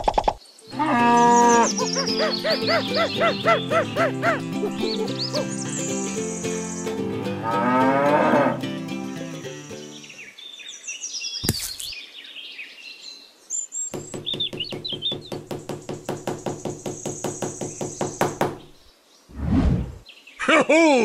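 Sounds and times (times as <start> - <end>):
cow mooing: 0.7 - 1.7, 7.4 - 8.6
background music: 0.7 - 10.2.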